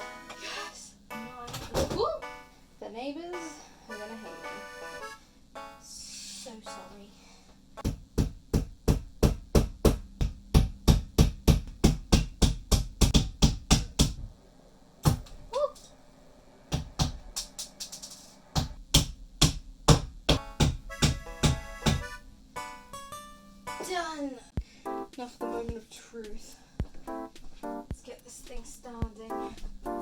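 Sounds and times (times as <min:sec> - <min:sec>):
fast steady hammering: 0:07.8 - 0:14.3, 0:16.7 - 0:22.2.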